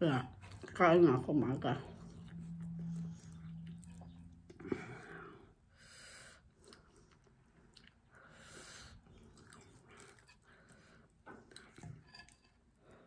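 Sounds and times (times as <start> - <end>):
person chewing: 1.9 - 5.2, 6.5 - 12.8.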